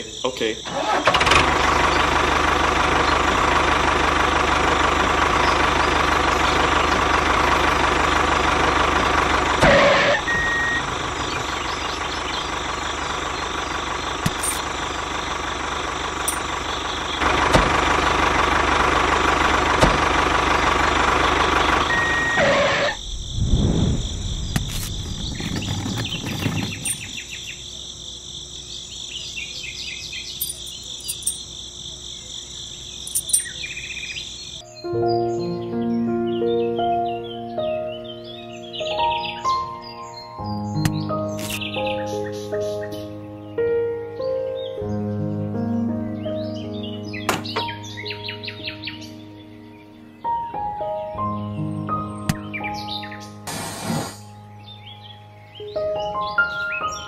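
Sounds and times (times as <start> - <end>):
tractor engine idling: 0.4 - 23.3, 24.0 - 34.6
low rumbles: 4.4 - 27.8.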